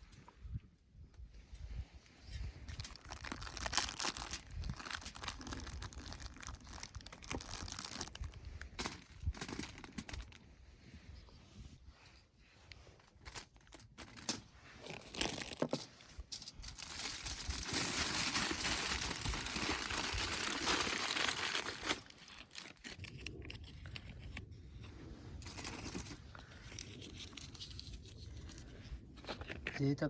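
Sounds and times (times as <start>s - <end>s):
packaging rustling: 2.7s - 10.4s, 13.1s - 24.4s, 25.4s - 29.7s
packaging crinkling: 2.8s - 10.4s, 13.2s - 24.3s.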